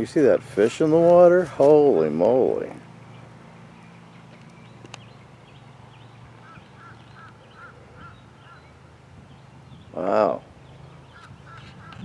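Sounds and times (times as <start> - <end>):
low steady hum: 0.0 - 12.0
bird calling short notes: 6.4 - 8.9, 10.7 - 12.0.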